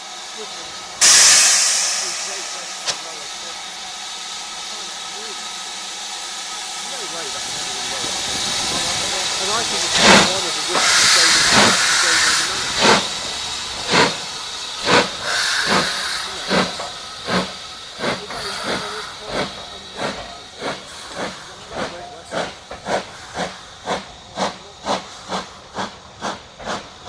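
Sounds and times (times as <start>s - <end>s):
steam hissing: 0.0s - 27.0s
steam locomotive exhaust chuffs: 0.0s - 27.0s.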